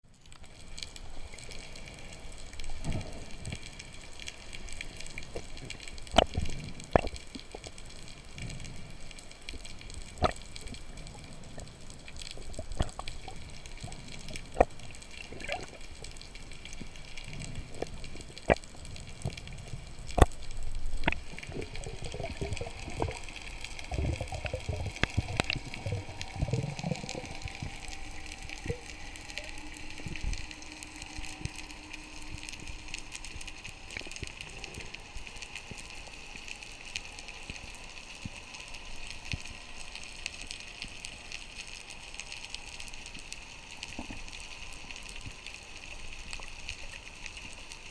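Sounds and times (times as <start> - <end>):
sharp clicks and crackles: 0.1 - 47.9
water gurgling underwater: 10.1 - 16.1, 17.4 - 33.0
low rushing swells: 21.5 - 33.9.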